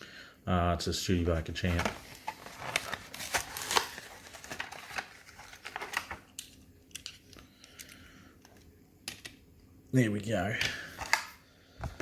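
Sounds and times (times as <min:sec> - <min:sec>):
plastic packaging crackling and tearing: 0:01.6 - 0:07.2.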